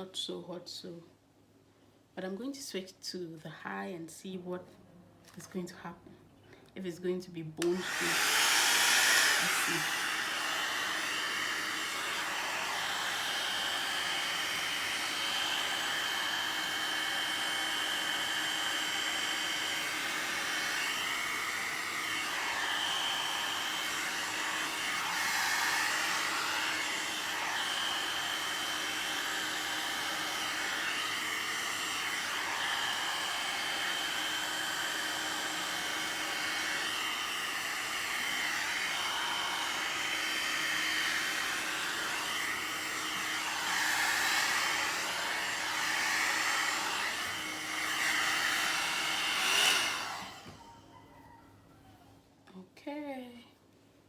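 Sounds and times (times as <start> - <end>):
hot-air dryer brush blowing: 7.6 - 50.8.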